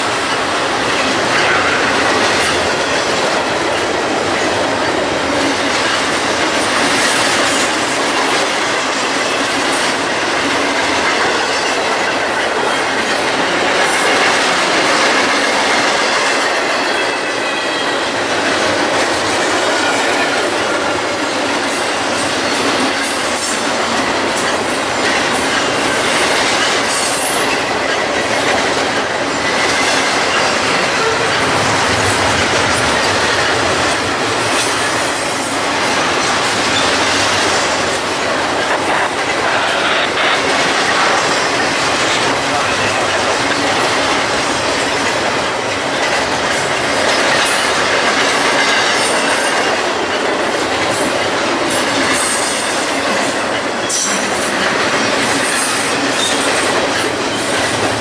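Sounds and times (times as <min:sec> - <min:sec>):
train wheels rumbling over rails: 0:00.0 - 0:58.0.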